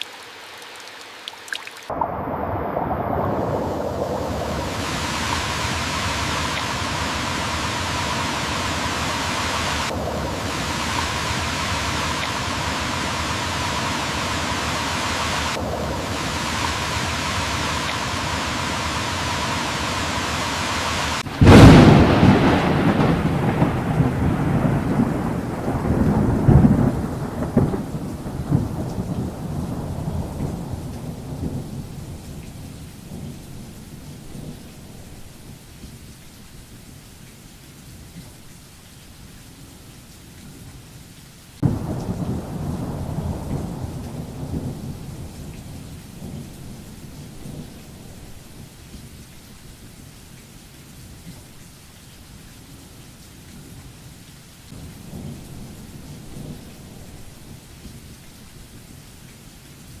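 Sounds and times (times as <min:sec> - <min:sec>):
steady rain: 0:00.0 - 1:00.0
sharp thunderclap: 0:01.9 - 0:35.3, 0:41.6 - 0:48.7
rolling thunder: 0:01.9 - 0:35.6, 0:41.6 - 0:49.0, 0:54.7 - 0:58.0.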